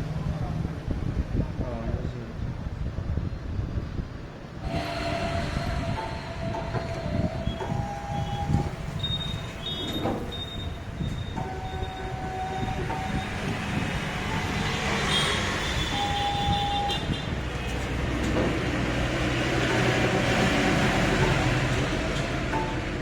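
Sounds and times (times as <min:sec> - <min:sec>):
short whining tones: 0:04.6 - 0:13.5
machine rumbling and hissing: 0:04.6 - 0:14.8.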